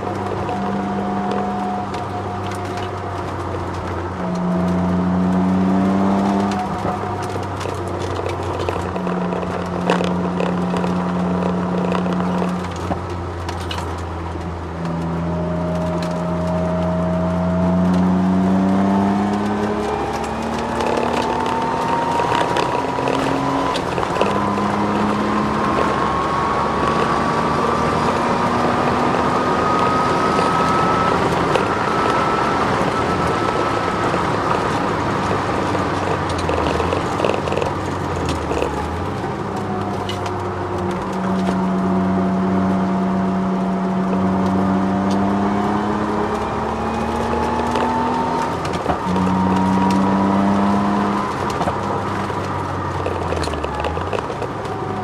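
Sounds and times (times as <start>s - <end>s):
thin rising whine: 0.0s - 13.0s, 14.0s - 54.2s
car engine accelerating: 0.0s - 55.0s.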